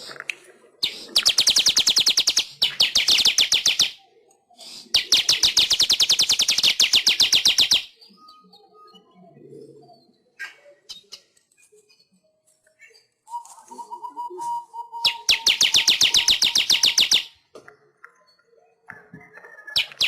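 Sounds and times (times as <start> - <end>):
weaver bird chattering song: 0.8 - 4.0, 4.6 - 9.0, 10.1 - 17.4, 19.6 - 20.0.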